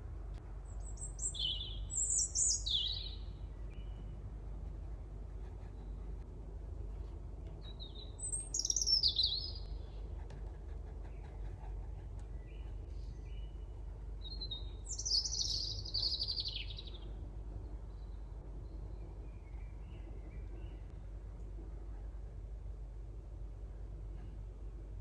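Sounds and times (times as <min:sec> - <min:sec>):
low steady hum: 0:00.0 - 0:25.0
bird singing twittering notes: 0:00.7 - 0:04.1, 0:07.6 - 0:09.8, 0:14.2 - 0:17.1.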